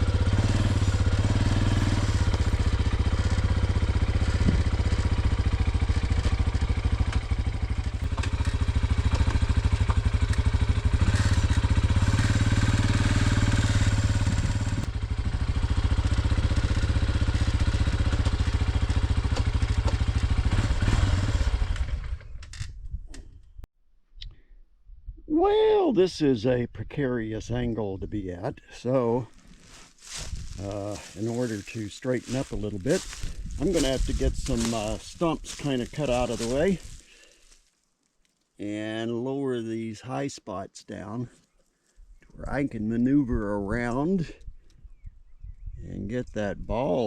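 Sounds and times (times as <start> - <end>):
vehicle engine running: 0.0 - 22.4, 29.3 - 37.6.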